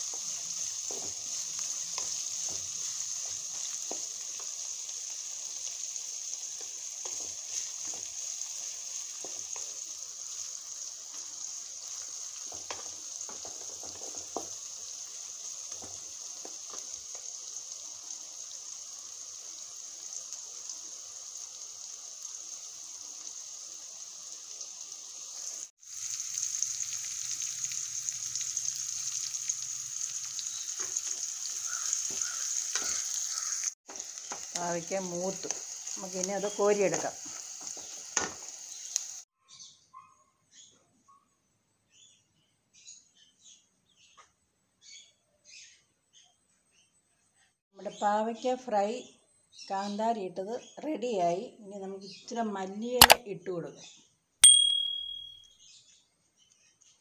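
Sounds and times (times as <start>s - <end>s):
wooden spatula scraping and tapping: 0.0s - 4.6s, 6.5s - 8.3s
vegetables sizzling in oil: 0.0s - 39.3s.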